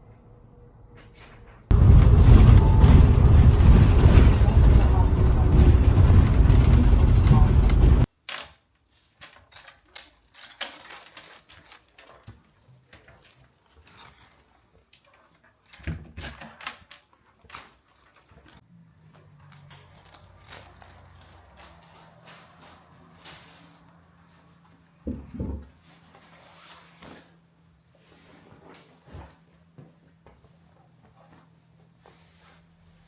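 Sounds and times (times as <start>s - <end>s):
low steady hum: 1.7s - 8.1s.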